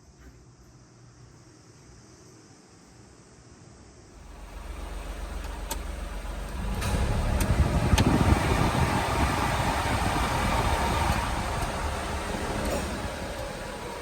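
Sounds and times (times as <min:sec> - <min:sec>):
small truck engine running: 0:04.2 - 0:14.0.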